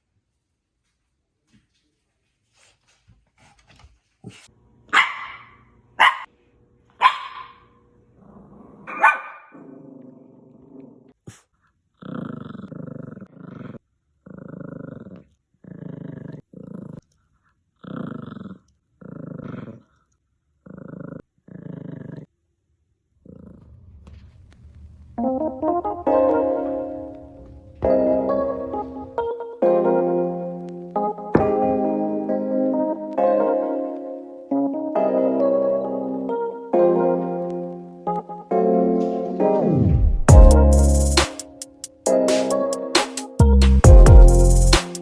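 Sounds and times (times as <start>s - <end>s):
dog barking: 4.9s - 6.3s, 7.0s - 7.7s, 8.9s - 9.6s
dog growling: 8.1s - 22.4s, 23.1s - 23.9s.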